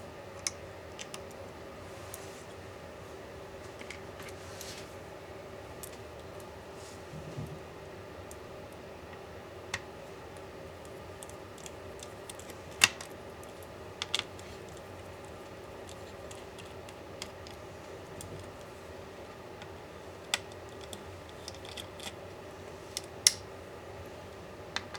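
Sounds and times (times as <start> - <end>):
steady low hum: 0.0 - 24.9
small tools clicking and tapping: 19.6 - 22.2.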